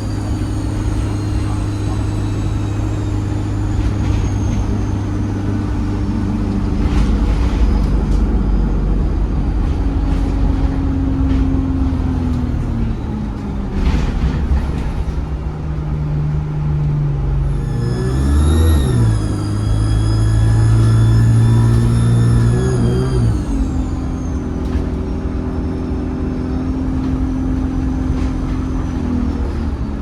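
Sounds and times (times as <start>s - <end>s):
bus diesel engine running: 0.0s - 30.0s
turbo whistle: 17.5s - 23.8s.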